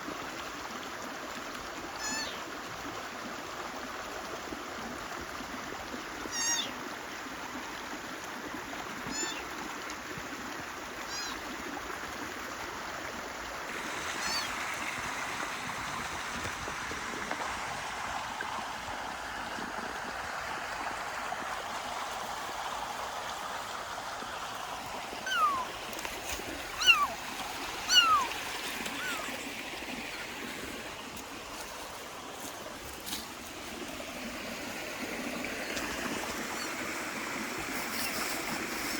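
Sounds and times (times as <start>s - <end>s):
stream running: 0.0s - 38.9s
kitten meowing: 2.0s - 2.4s, 6.3s - 6.7s, 9.1s - 9.4s, 11.1s - 11.4s, 14.2s - 14.5s, 25.2s - 25.7s, 26.7s - 27.2s, 27.8s - 28.3s, 28.9s - 29.3s.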